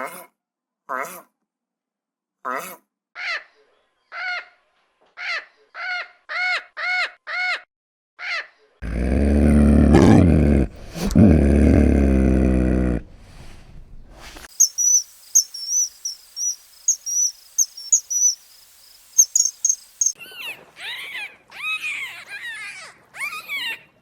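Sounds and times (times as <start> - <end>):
high rapid animal chirping: 14.5 - 20.2.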